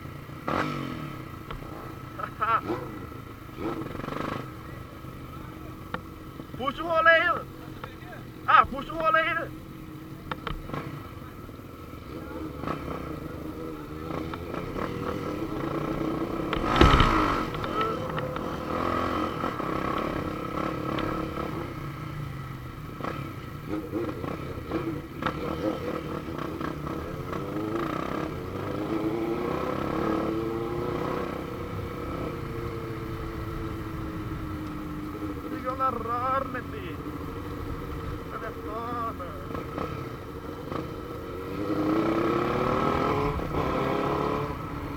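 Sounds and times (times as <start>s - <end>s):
motorcycle engine running: 0.0s - 44.9s
loud rush: 16.6s - 17.8s.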